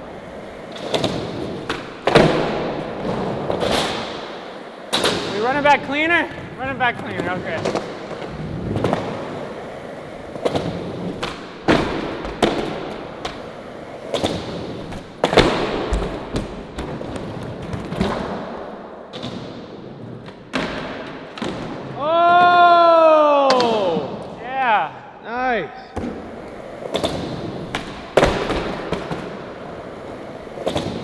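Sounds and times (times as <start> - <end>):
skateboard popping and landing: 0.0 - 6.1, 7.0 - 22.6, 26.0 - 31.0
skateboard wheels rolling on pavement: 0.0 - 24.5, 26.0 - 31.0
person shouting: 21.9 - 26.0.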